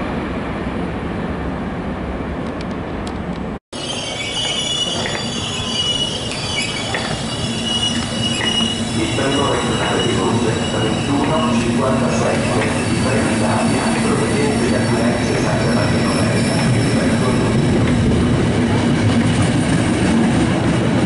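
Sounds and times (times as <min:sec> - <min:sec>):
distant train rumble: 0:00.0 - 0:21.0
train rumble and rattle: 0:00.0 - 0:21.0
train wheels squealing: 0:03.8 - 0:17.7.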